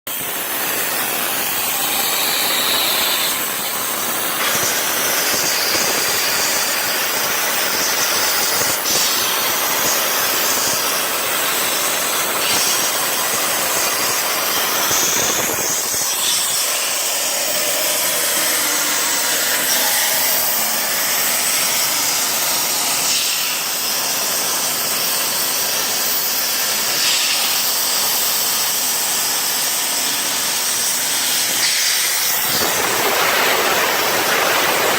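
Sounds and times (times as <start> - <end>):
plasma torch hissing: 0.1 - 17.9, 31.1 - 34.9.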